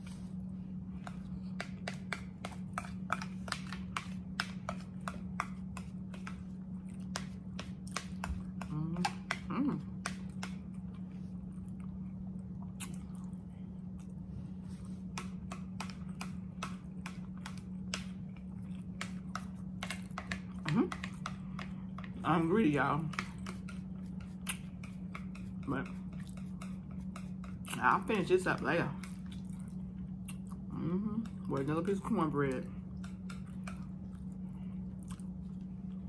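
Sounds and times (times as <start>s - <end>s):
steady low hum: 0.0s - 36.0s
chewing with wet mouth smacks: 0.4s - 22.2s, 23.1s - 28.4s, 29.0s - 36.0s
short hummed vocal sound: 8.4s - 10.3s, 20.5s - 21.2s, 30.2s - 32.8s.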